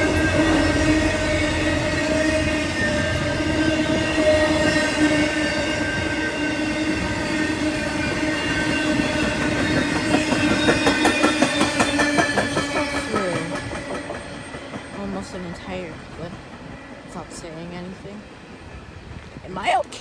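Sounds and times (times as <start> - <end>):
train whine: 0.0 - 19.1
wheels clicking over rail joints: 9.3 - 16.7.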